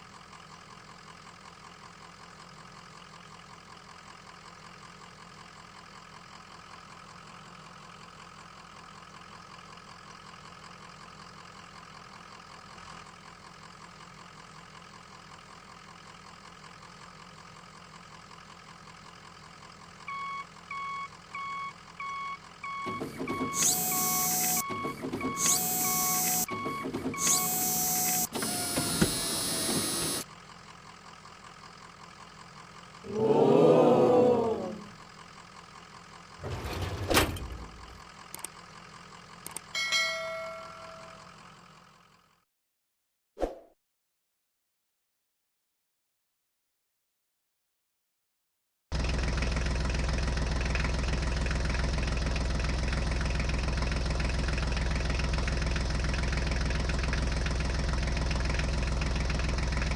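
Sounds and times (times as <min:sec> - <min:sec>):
engine-like hum: 0:00.0 - 0:42.4, 0:48.9 - 0:59.9
quick electronic beeps: 0:22.1 - 0:28.3.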